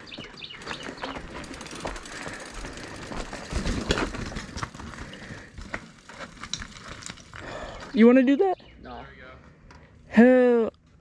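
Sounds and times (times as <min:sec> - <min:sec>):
bike tyres crunching on rock: 0:00.0 - 0:08.0
bike jolt: 0:00.1 - 0:08.0
bike chain and frame rattling: 0:00.4 - 0:07.8.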